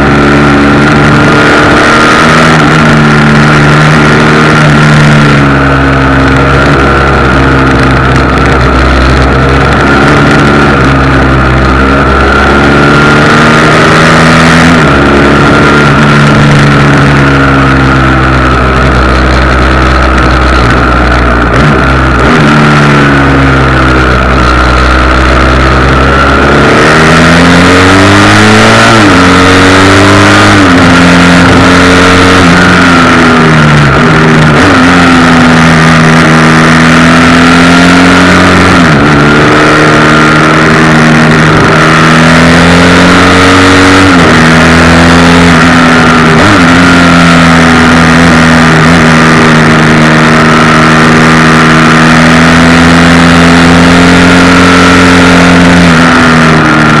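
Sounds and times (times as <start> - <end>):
motorcycle engine revving: 0.0 - 57.0
camera vibration rattle: 0.7 - 13.4, 14.6 - 26.7.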